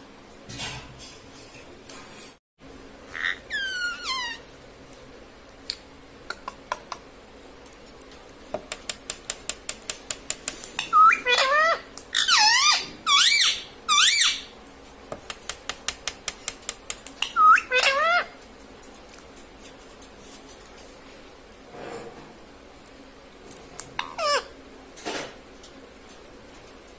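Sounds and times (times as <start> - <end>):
parrot screeching: 3.1 - 4.5, 10.8 - 14.5, 17.2 - 18.4, 24.0 - 24.6.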